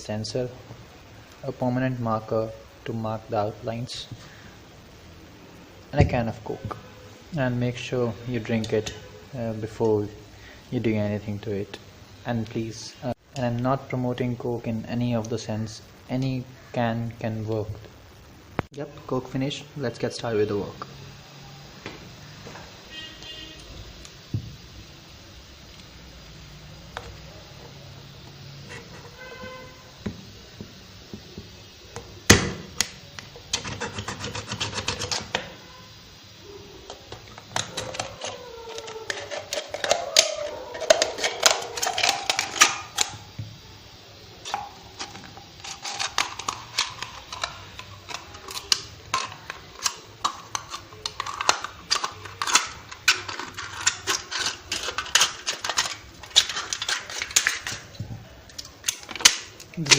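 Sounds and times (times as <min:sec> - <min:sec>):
thin metal crinkling: 0:36.8 - 0:43.3, 0:44.4 - 0:59.9.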